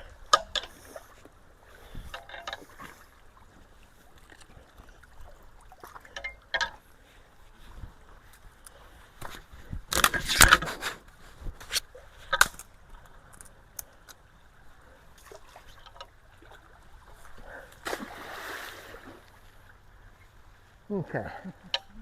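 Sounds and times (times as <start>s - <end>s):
water sloshing: 0.0s - 11.0s, 11.8s - 20.8s
branches cracking and knocking: 9.2s - 10.8s, 11.6s - 13.5s.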